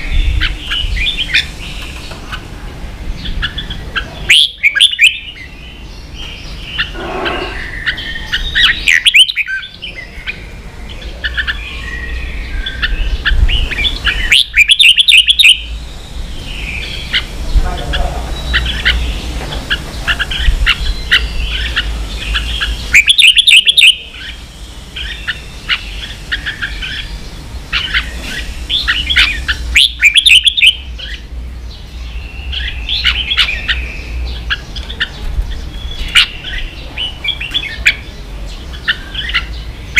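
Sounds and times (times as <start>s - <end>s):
bulbul singing: 0.0s - 39.9s
rapid chattering bird notes: 12.6s - 39.9s.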